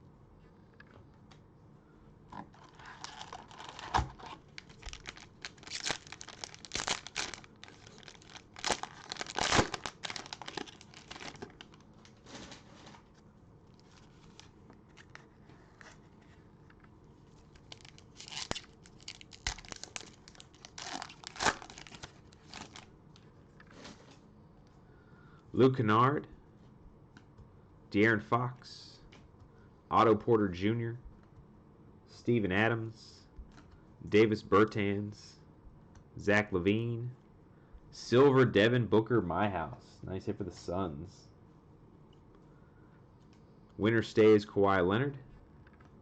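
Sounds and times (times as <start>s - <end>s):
cellophane tearing and crinkling: 2.5s - 12.6s, 17.5s - 22.9s.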